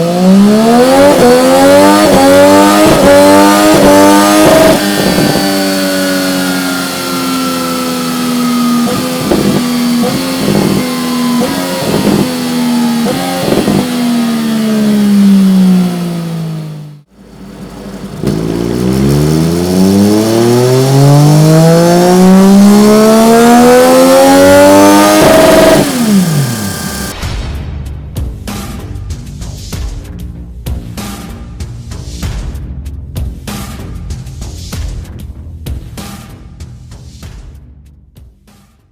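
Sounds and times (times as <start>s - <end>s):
motorcycle engine revving: 0.0s - 27.2s
exhaust pops: 0.0s - 27.4s.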